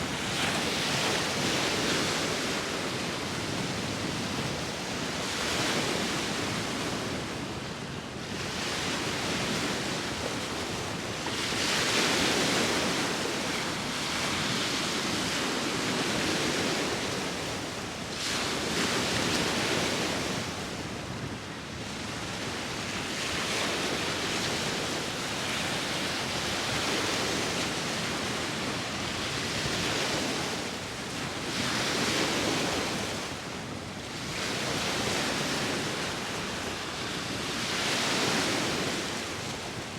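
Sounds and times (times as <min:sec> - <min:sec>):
sea waves breaking ashore: 0:00.0 - 0:07.5.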